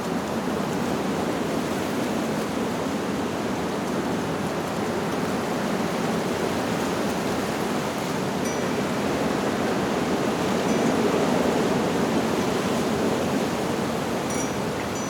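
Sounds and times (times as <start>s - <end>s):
wind blowing through leaves: 0.0s - 15.0s.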